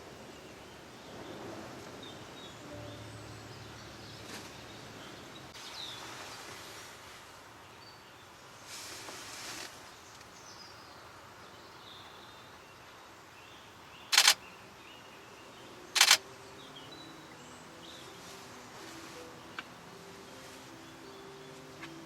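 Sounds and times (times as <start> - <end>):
camera shutter bursts: 14.1 - 14.4, 16.0 - 16.2.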